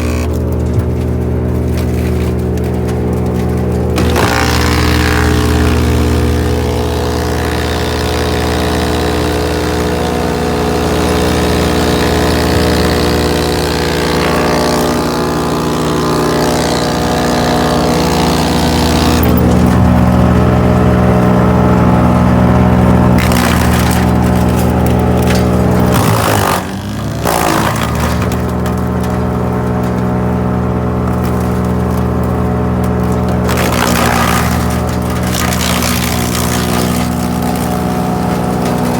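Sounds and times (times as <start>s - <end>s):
wood chipper running: 0.0s - 38.9s.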